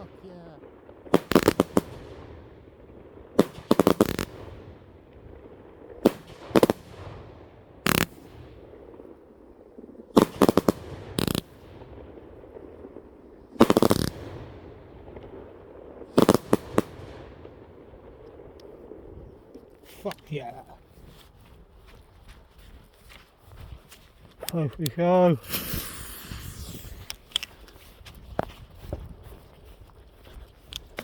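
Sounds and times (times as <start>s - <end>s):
fireworks banging: 0.0s - 22.0s, 24.3s - 29.5s.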